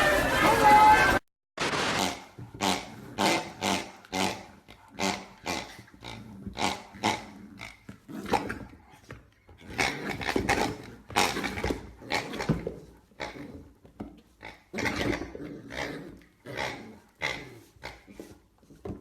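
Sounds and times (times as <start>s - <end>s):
dog growling: 2.6s - 8.9s, 9.6s - 13.8s, 14.6s - 18.2s.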